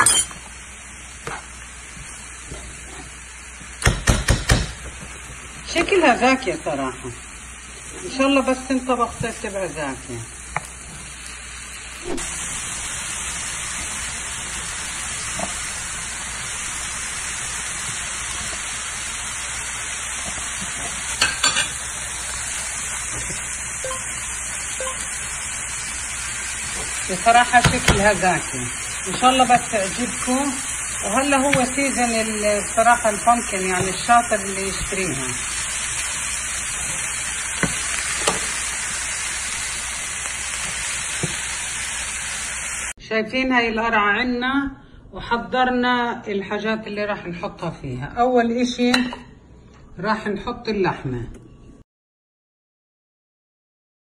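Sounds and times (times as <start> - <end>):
vegetables sizzling in a frying pan: 0.0 - 43.0.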